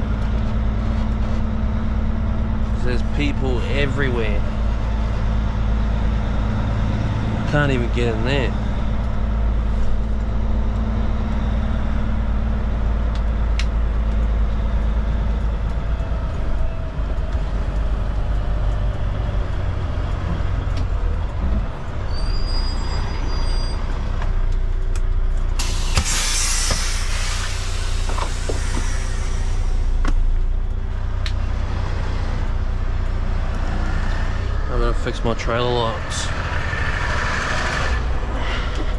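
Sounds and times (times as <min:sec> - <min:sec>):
diesel truck engine running: 0:00.0 - 0:38.9
air brake hiss: 0:25.6 - 0:30.0.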